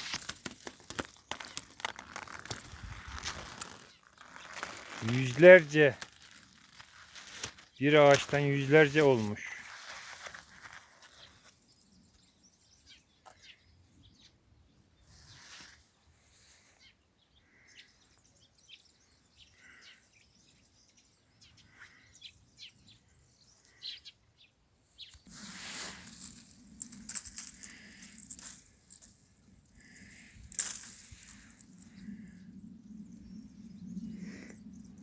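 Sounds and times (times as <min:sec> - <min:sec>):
footsteps through dry undergrowth: 0:00.0 - 0:11.8, 0:25.2 - 0:32.4
songbirds chirping: 0:00.2 - 0:35.0.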